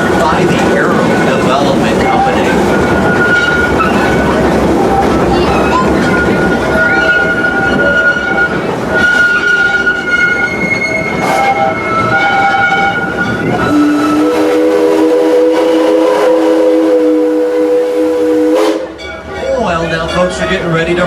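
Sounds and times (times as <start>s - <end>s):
train running: 0.0s - 21.0s
high squealing tones: 2.0s - 14.2s
steam locomotive whistle blast: 6.2s - 19.0s.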